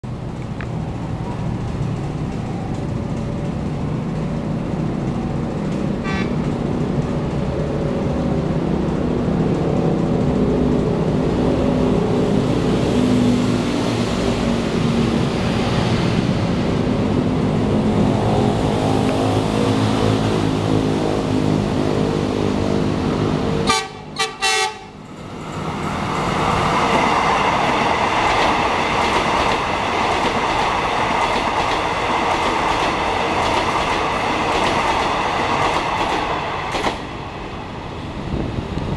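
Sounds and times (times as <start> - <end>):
train rumble: 0.0 - 38.9
train rushing past with whine: 0.0 - 38.9
train horn blasts: 6.0 - 6.4, 23.6 - 25.0.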